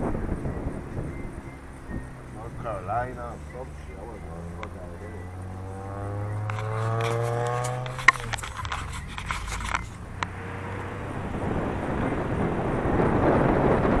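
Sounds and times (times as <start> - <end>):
car engine: 0.0 - 14.0
sharp clicks: 3.3 - 10.4.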